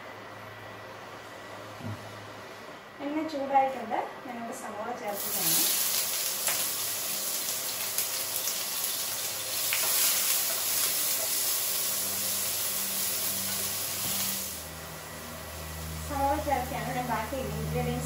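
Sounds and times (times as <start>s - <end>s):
onions sizzling in a frying pan: 5.1s - 18.0s.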